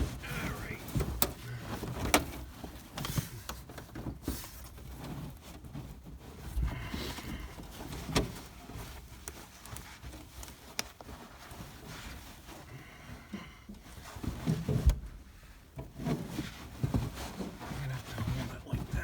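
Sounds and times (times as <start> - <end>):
carpet scraping and rustling: 0.0 - 19.0.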